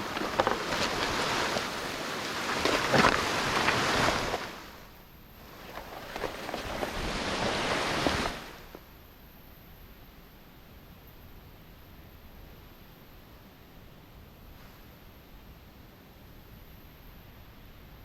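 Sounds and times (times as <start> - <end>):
snow hissing under skis: 0.0 - 4.8, 5.4 - 8.8
wind on microphone: 5.4 - 8.8.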